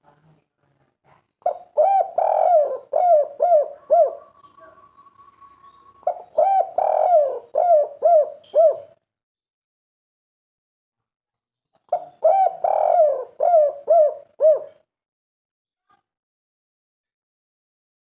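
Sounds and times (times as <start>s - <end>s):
dove cooing: 1.4s - 9.0s, 11.9s - 14.8s.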